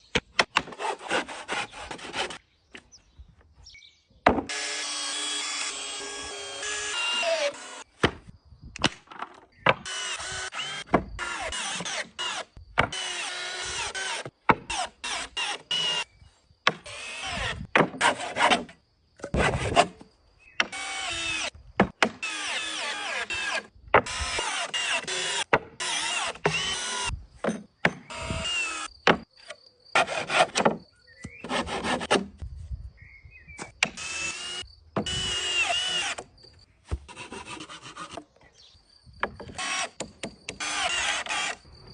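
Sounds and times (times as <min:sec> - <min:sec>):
power tool on wood: 0:04.5 - 0:07.8.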